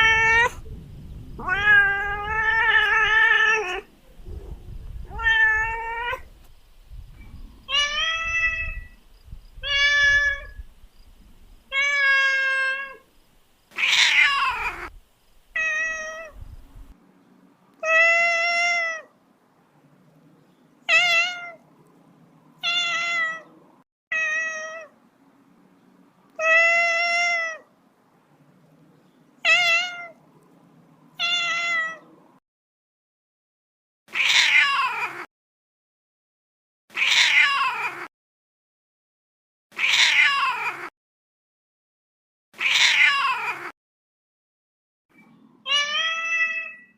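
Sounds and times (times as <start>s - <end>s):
kitten meowing: 1.4s - 3.9s, 5.1s - 6.3s, 9.6s - 10.6s, 13.8s - 14.9s, 15.6s - 16.4s, 45.7s - 46.9s.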